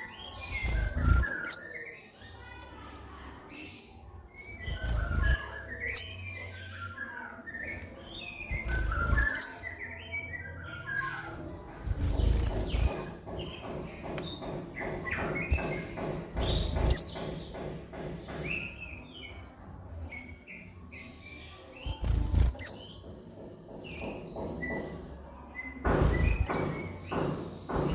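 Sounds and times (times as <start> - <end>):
loud high bird chirps: 0.0 - 2.2, 3.5 - 11.4, 14.4 - 17.4, 20.2 - 23.1, 26.1 - 27.3
bird twittering song: 0.0 - 27.9.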